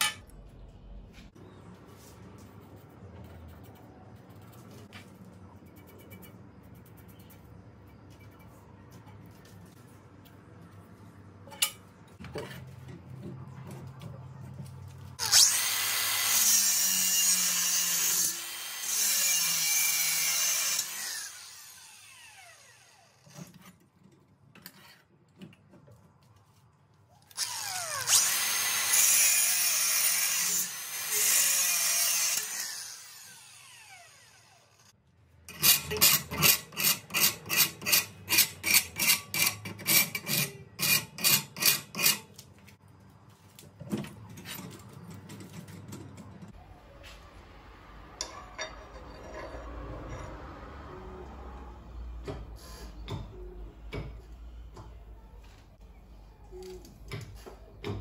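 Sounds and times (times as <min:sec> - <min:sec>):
angle grinder cutting steel: 0:15.2 - 0:23.4, 0:27.4 - 0:34.9, 0:35.5 - 0:42.2
rasping strokes on steel: 0:35.5 - 0:42.3.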